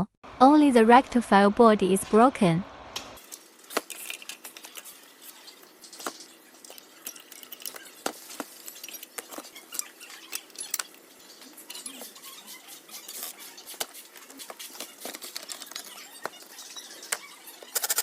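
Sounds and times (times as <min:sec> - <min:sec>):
metal tools and screws clicking: 0:03.2 - 0:13.8, 0:15.0 - 0:18.0.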